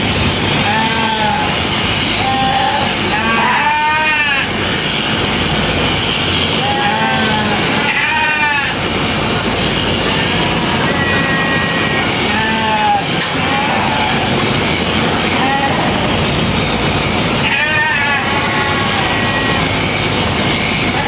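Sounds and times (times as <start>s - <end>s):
steady background noise: 0.0s - 21.0s
sheep bleating: 0.5s - 4.6s, 6.5s - 8.9s, 10.1s - 14.4s, 15.2s - 16.3s, 17.4s - 20.0s.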